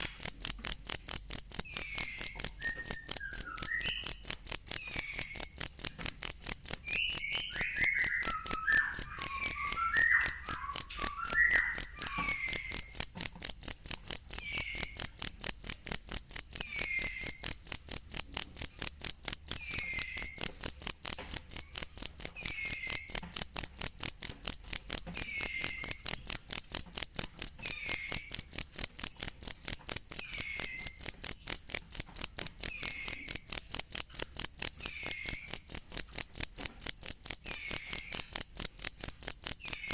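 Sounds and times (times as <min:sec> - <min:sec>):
cricket chirping: 0:00.0 - 0:39.9
faint falling call: 0:07.5 - 0:12.9.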